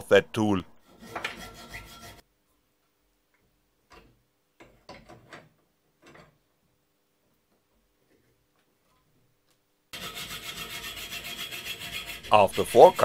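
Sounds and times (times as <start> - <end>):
hand saw cutting metal: 0.8 - 2.2, 10.0 - 13.0.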